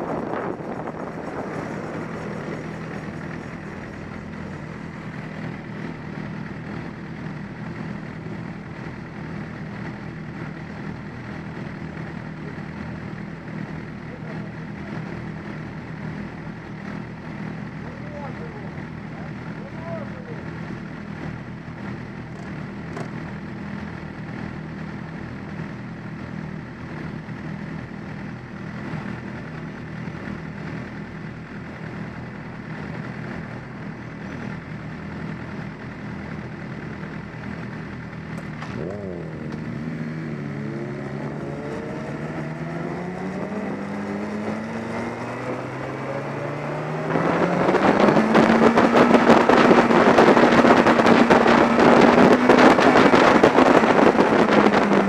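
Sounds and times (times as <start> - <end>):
wind rush on microphone: 0.0 - 6.9, 40.3 - 55.0
motorcycle engine revving: 0.0 - 55.0.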